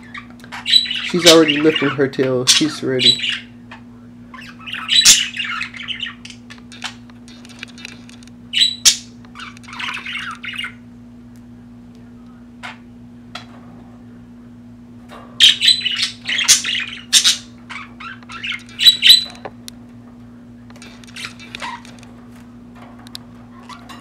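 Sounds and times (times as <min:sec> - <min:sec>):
budgerigars chattering and squawking: 0:00.0 - 0:03.6, 0:04.3 - 0:07.0, 0:08.5 - 0:10.8, 0:15.4 - 0:19.4, 0:20.8 - 0:22.1
faint steady hum: 0:00.0 - 0:24.0.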